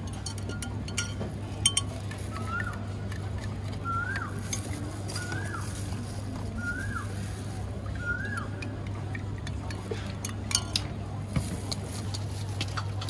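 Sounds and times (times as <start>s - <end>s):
spoon stirring in plastic cup: 0.0s - 6.4s.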